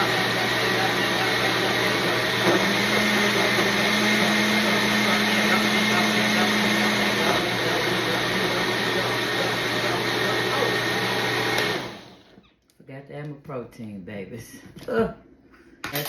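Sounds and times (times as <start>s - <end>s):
blender running: 0.0s - 12.4s.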